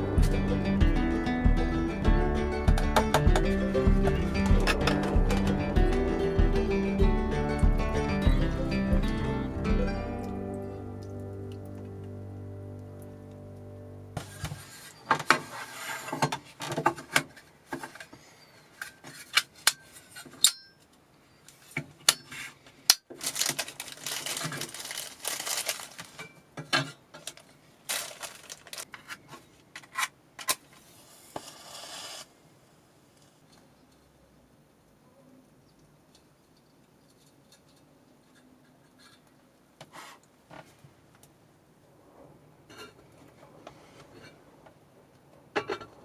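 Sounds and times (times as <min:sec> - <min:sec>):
background music: 0:00.0 - 0:14.2
rustling: 0:21.5 - 0:26.4, 0:27.2 - 0:30.0.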